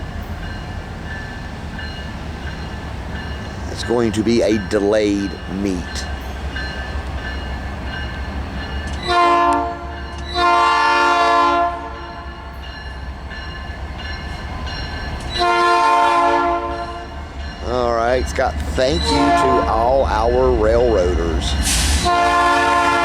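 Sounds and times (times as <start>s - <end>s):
low rumble of train: 0.0s - 23.0s
locomotive air horn blasts: 9.0s - 12.5s, 15.4s - 17.1s, 19.0s - 19.9s, 21.6s - 23.0s.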